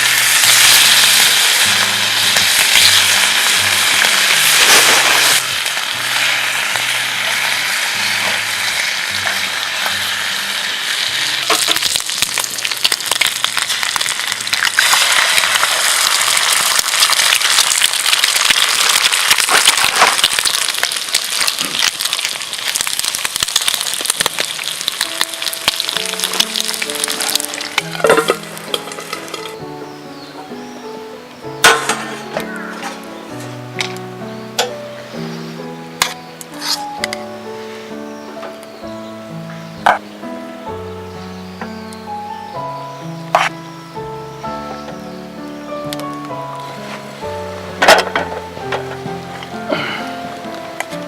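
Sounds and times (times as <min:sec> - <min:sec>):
food sizzling in a pan: 0:00.0 - 0:30.3.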